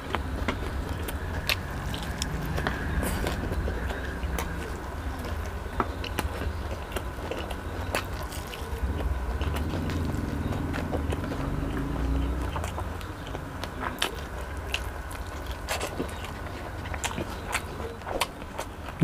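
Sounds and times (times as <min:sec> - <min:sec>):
steady low rumble: 0:00.0 - 0:17.6
person chewing crunchy food: 0:00.0 - 0:19.0.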